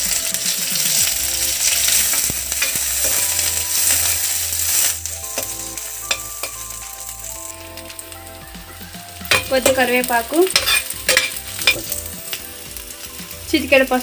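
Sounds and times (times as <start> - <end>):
vegetables sizzling in hot oil: 0.0 - 14.0
spoon clicking against pan: 5.4 - 6.6, 9.3 - 9.9, 10.5 - 12.0.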